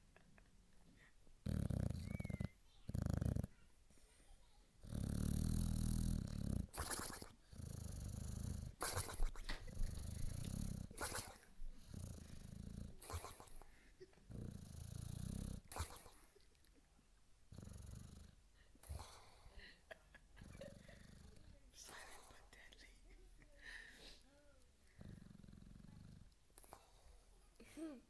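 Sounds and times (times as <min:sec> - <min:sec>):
dog snoring: 0:01.4 - 0:03.6, 0:04.8 - 0:13.6, 0:14.3 - 0:16.2, 0:17.5 - 0:19.4, 0:25.0 - 0:27.0.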